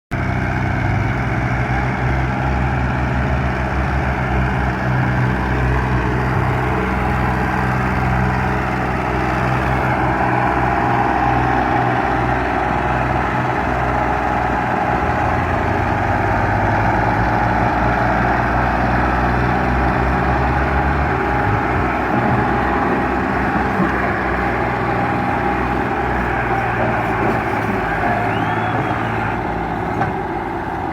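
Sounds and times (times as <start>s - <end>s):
tractor diesel engine running: 0.1s - 30.9s.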